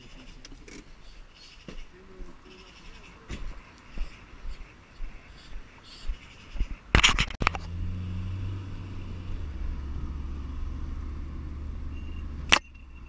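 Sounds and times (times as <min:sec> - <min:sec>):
car engine humming: 0:07.4 - 0:13.0.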